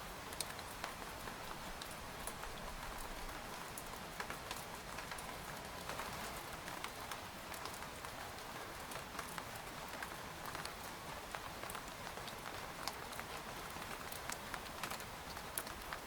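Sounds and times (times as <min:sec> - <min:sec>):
rain on a tent: 0:00.0 - 0:16.0.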